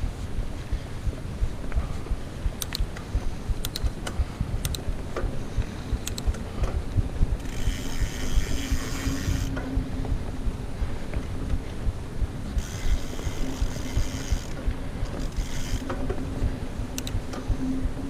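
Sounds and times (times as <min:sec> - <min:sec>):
mountain bike rolling on a trail: 0:00.0 - 0:17.6
sharp clicks: 0:02.5 - 0:05.3, 0:06.0 - 0:06.8, 0:16.9 - 0:17.4
freewheel ratchet buzzing: 0:07.4 - 0:09.6, 0:12.6 - 0:16.0.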